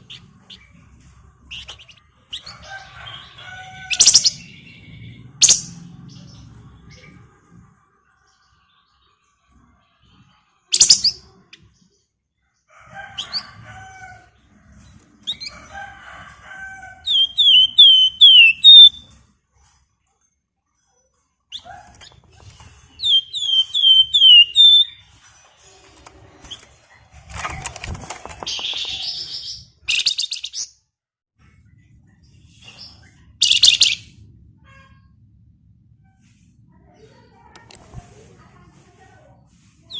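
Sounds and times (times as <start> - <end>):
bird harsh chattering: 23.0 - 25.0
rustle of wings or cage: 25.2 - 29.2.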